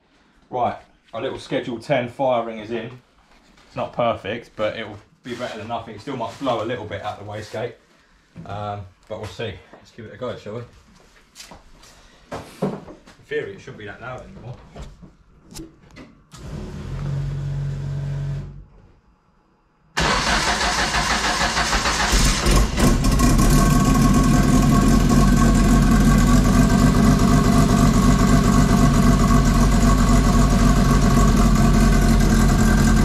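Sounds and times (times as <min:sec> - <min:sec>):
car engine running loud: 0:22.3 - 0:33.0.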